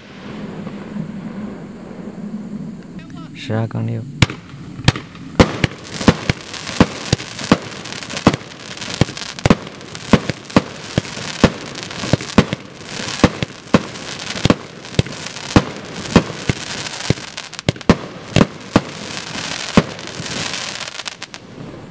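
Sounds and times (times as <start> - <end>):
fireworks hiss: 0.0 - 21.9
fireworks shots banging: 4.2 - 21.7.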